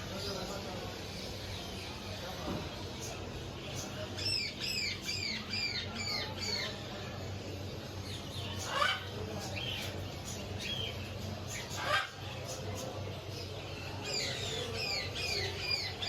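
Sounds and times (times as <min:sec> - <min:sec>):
caged birds chirping: 0:00.0 - 0:16.0
bird squawks: 0:08.5 - 0:09.2, 0:11.5 - 0:12.3.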